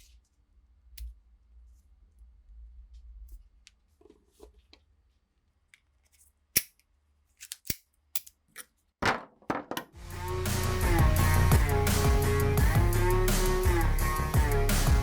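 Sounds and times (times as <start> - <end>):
music: 10.0 - 15.0.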